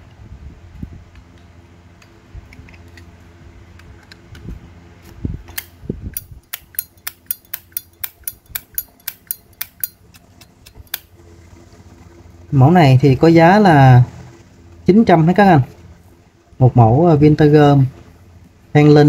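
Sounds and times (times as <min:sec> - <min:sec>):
lighter lid clicking open and shut: 0:05.5 - 0:11.1.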